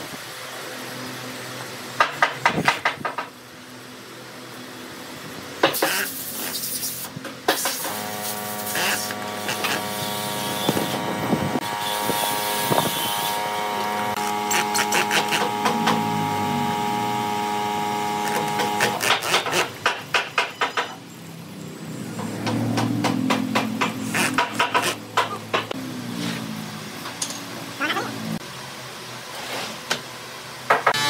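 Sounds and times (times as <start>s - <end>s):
drill motor whine: 7.9s - 19.6s.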